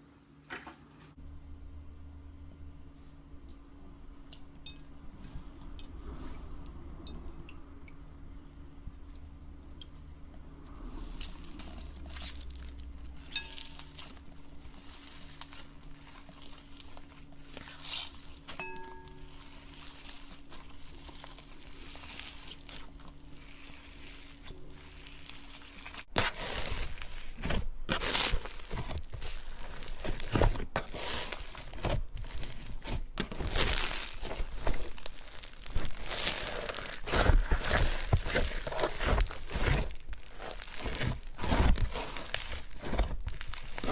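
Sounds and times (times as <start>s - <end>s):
faint steady hum: 0.0s - 43.9s
slime crackling: 9.6s - 43.9s.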